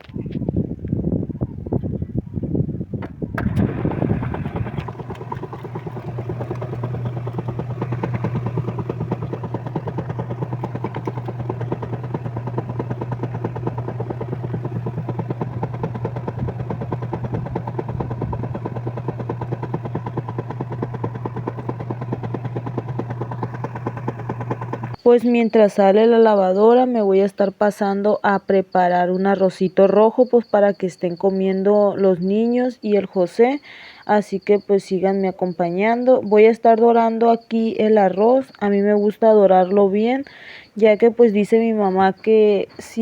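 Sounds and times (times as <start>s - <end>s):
washing machine churning pulse: 3.4s - 25.0s
washing machine motor humming: 3.4s - 25.0s.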